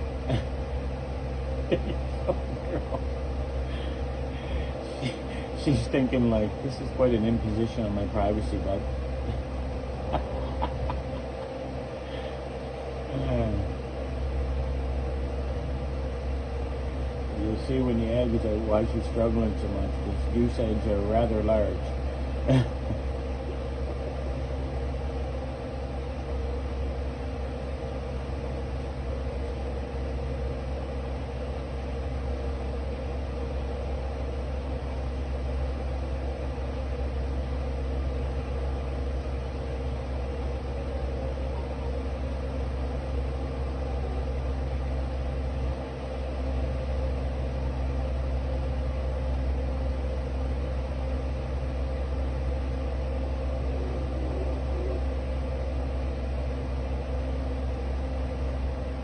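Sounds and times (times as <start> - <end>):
low machine hum: 0.0 - 59.0.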